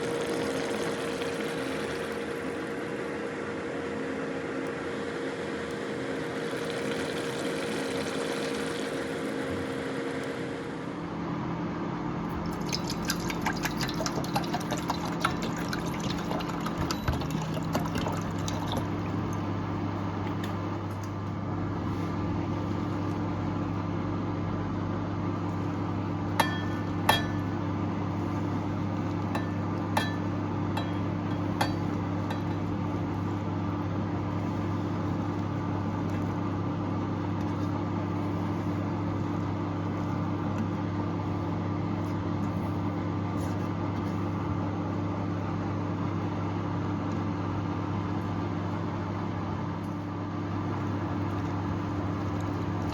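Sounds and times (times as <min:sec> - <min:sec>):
low mechanical hum: 0:00.0 - 0:52.9
kitchenware clinking: 0:26.4 - 0:27.6, 0:29.4 - 0:32.7.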